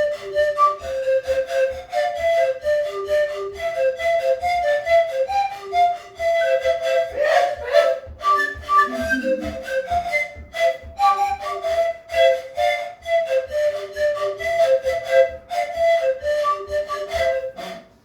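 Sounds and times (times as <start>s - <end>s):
panpipes ensemble playing: 0.0s - 18.0s
low thud beat: 8.7s - 10.0s.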